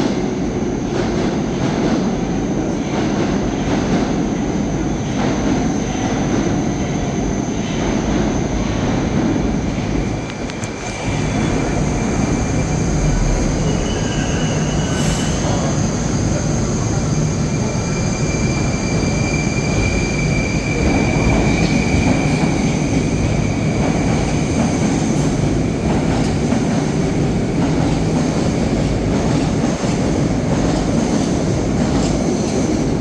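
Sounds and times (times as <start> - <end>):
train rumbling on track: 0.0 - 33.0
high thin wheel squeal: 13.6 - 15.9.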